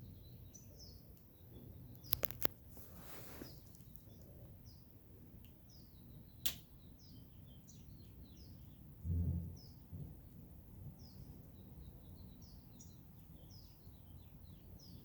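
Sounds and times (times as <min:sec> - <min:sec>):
small birds chirping: 0:00.0 - 0:15.0
sharp click: 0:06.4 - 0:06.7.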